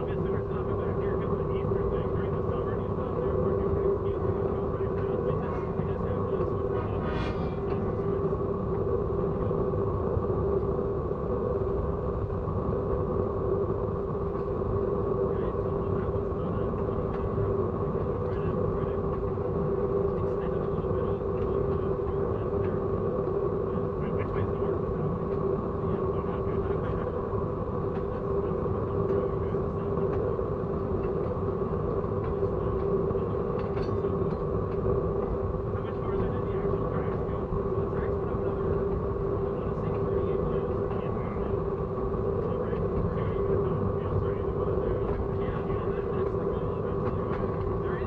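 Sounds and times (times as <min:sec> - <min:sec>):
steady hum: 0:00.0 - 0:48.0
train rumbling: 0:05.0 - 0:09.4.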